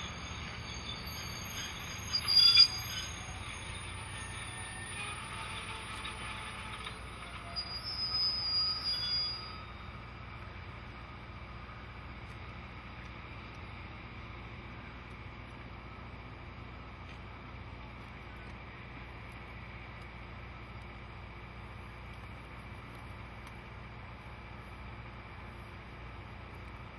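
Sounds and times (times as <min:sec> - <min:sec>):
high-pitched wheel squeal: 0:00.0 - 0:10.6
train cars rumbling on rails: 0:00.0 - 0:26.9.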